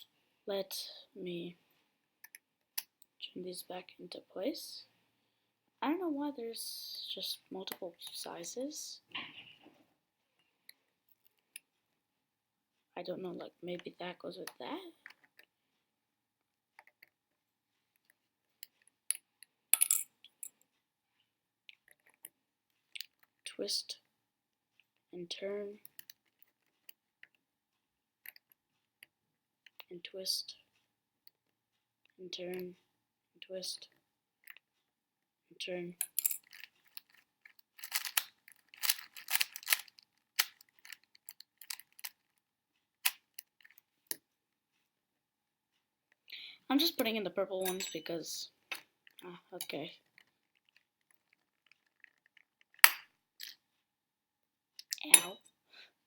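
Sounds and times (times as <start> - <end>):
plastic cube pieces clicking: 36.4 - 42.3.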